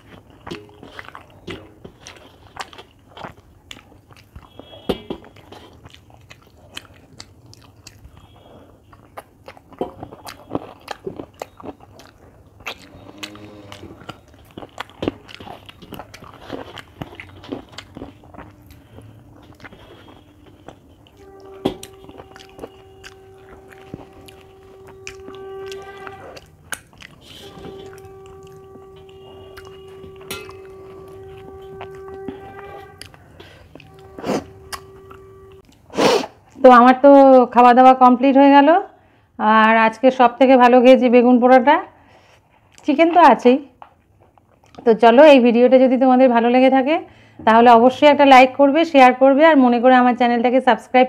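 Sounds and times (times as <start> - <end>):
chewing and wet mouth clicks: 0.0 - 30.7, 33.0 - 35.9, 43.8 - 44.9
steady horn-like tones: 4.4 - 5.3, 12.8 - 14.4, 16.4 - 35.8
fingers scraping a brass plate: 21.2 - 26.5, 27.2 - 35.5.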